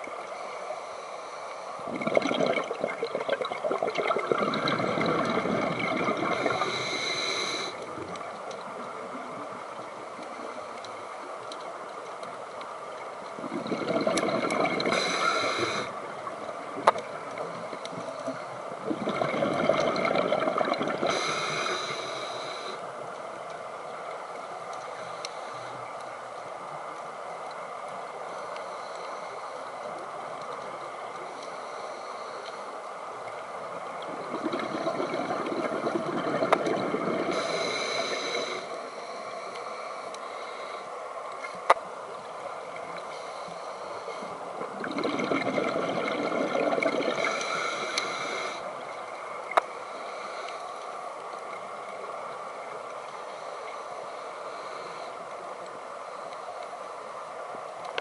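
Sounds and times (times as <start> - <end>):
exhaled air bubbling: 1.8 - 10.4, 13.2 - 22.8, 33.8 - 38.7, 44.1 - 49.6
scuba regulator hiss: 6.3 - 7.8, 14.9 - 15.9, 21.1 - 22.8, 37.3 - 40.8, 47.2 - 48.7.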